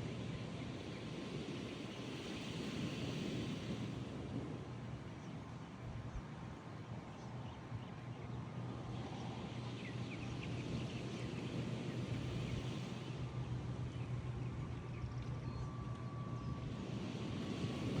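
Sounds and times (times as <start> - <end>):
seaside wash: 0.0 - 5.7, 16.6 - 18.0
constant low hum: 0.0 - 18.0.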